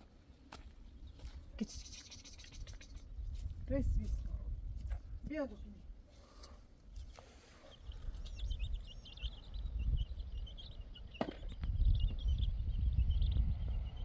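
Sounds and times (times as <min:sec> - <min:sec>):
small birds chirping: 0:00.0 - 0:04.2, 0:05.3 - 0:14.0
low wind rumble: 0:03.0 - 0:06.0, 0:07.8 - 0:14.0.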